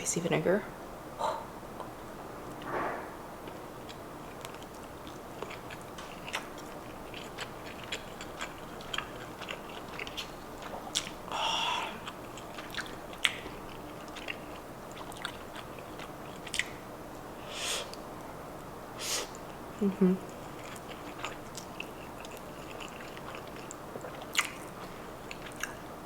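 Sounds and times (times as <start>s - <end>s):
chewing with wet mouth clicks: 3.4s - 11.3s, 11.9s - 16.8s, 20.2s - 25.9s.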